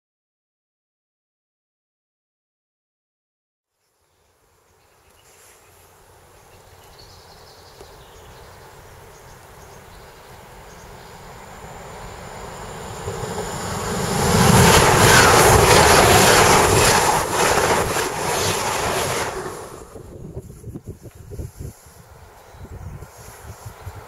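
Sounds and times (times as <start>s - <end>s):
high-speed train rushing past: 8.6s - 20.2s.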